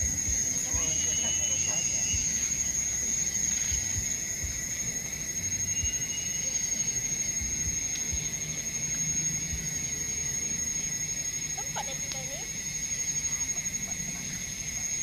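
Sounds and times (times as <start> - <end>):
soft low thumps: 0.0 - 0.9, 1.9 - 6.1, 7.4 - 8.7
insects droning: 0.0 - 15.0.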